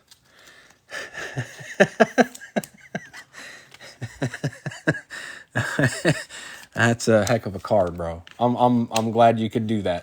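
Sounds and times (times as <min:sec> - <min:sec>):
man chuckling: 0:00.9 - 0:06.4.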